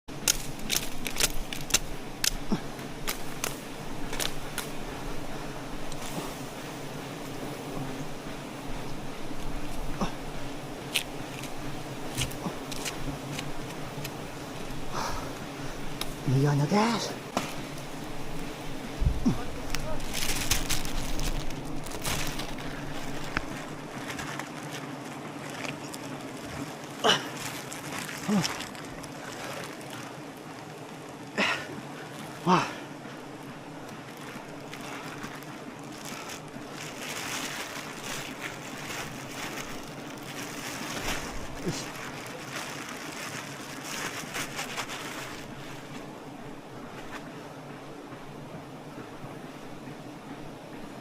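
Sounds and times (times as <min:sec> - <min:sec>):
clicks and rustles: 0:00.1 - 0:04.8, 0:19.6 - 0:31.4
honeybees buzzing: 0:00.1 - 0:51.0
steady low hum: 0:00.1 - 0:51.0.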